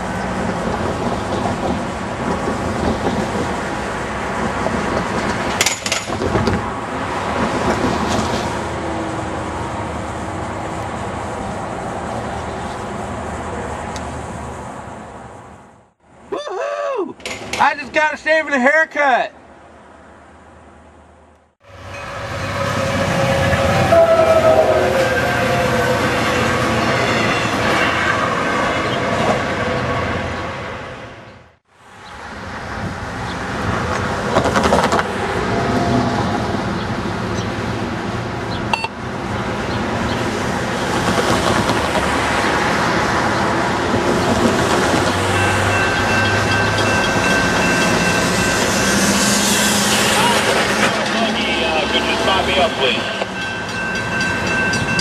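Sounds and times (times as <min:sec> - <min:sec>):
train on rails: 0:00.0 - 0:16.3, 0:19.4 - 0:55.0
diesel locomotive engine running: 0:43.8 - 0:55.0.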